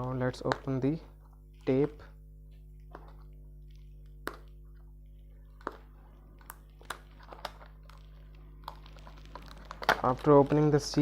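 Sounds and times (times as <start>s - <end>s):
low electrical hum: 0.0s - 11.0s
tape seal clicking and crackling: 5.6s - 11.0s.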